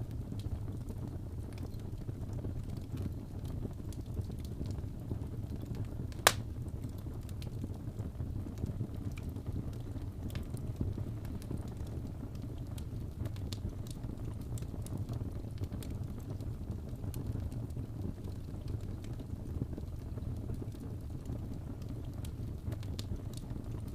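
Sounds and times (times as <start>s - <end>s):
fire crackling: 0.0s - 23.9s
fire rumbling: 0.0s - 23.9s
loud sharp pop: 6.2s - 6.4s.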